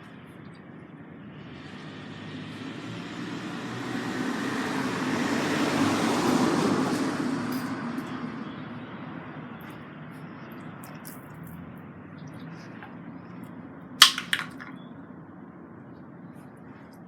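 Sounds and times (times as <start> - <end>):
vehicle passing by: 1.4 - 8.4.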